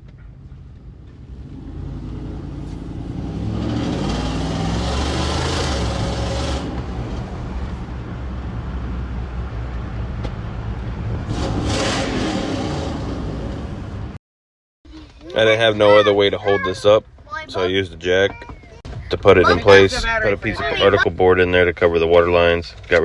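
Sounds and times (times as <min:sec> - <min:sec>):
car engine accelerating: 0:01.0 - 0:14.2.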